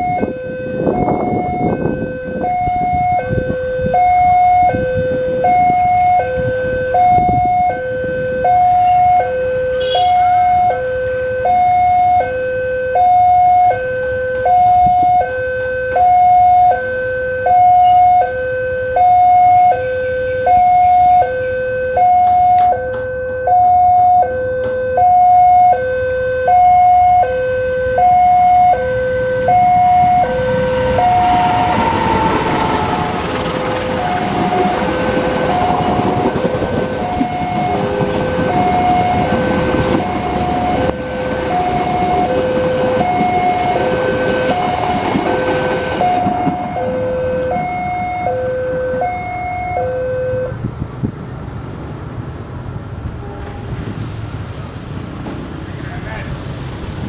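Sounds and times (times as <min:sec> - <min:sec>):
two-tone crossing alarm: 0:00.0 - 0:50.7.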